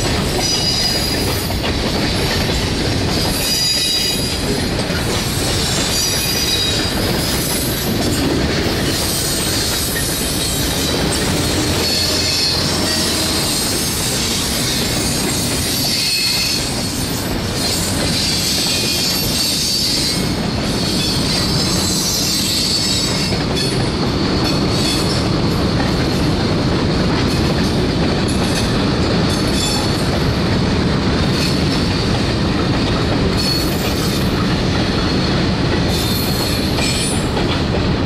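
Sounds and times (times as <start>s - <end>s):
freight train wheels rumbling: 0.0s - 38.0s
high wheel squeals: 0.3s - 1.4s, 5.3s - 7.9s, 9.0s - 23.4s.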